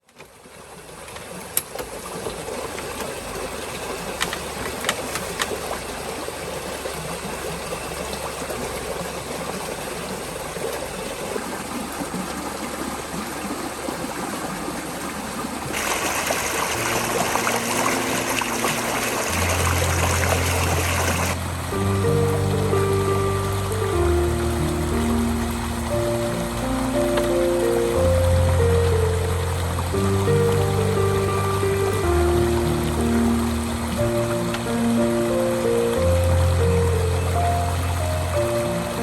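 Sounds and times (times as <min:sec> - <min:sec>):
water flowing: 0:00.0 - 0:39.0
background music with low notes: 0:15.8 - 0:39.0.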